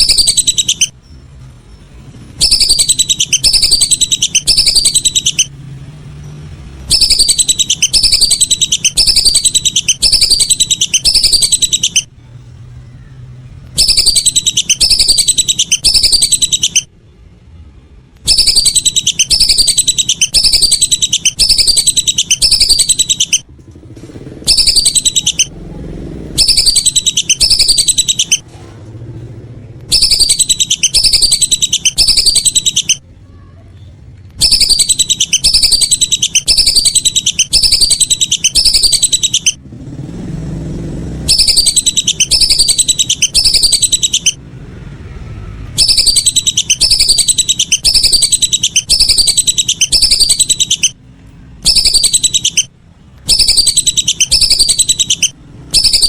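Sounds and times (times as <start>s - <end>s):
whistling duck calls: 0.0s - 0.9s, 2.4s - 5.5s, 6.9s - 12.1s, 13.8s - 16.9s, 18.3s - 23.4s, 24.5s - 25.5s, 26.4s - 28.4s, 29.9s - 33.0s, 34.4s - 39.6s, 41.3s - 44.4s, 45.8s - 51.0s, 51.6s - 52.7s, 53.3s - 56.0s.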